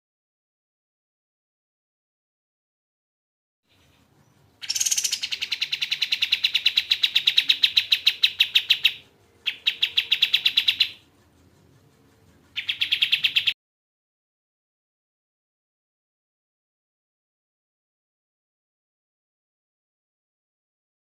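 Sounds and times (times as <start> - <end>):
bird chattering: 3.7 - 13.6.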